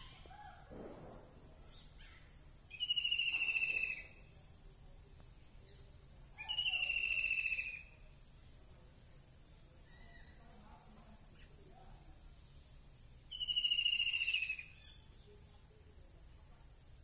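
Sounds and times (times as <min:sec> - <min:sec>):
bird trilling: 0:02.0 - 0:04.2, 0:06.4 - 0:08.0, 0:13.3 - 0:15.0.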